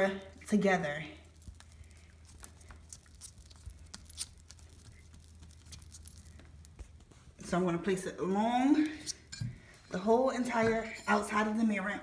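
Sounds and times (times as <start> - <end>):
low steady hum: 0.0 - 12.0
tape crackling: 0.3 - 8.0.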